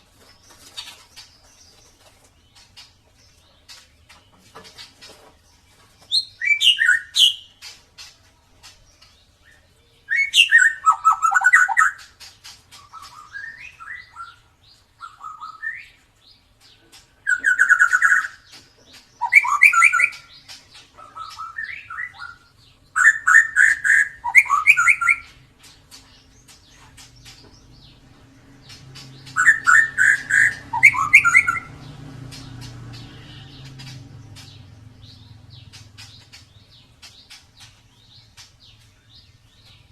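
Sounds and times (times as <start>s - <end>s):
bird singing whistled notes: 6.1s - 7.5s, 9.5s - 12.1s, 12.8s - 16.0s, 17.3s - 18.6s, 19.2s - 20.5s, 21.1s - 25.4s, 28.6s - 36.8s.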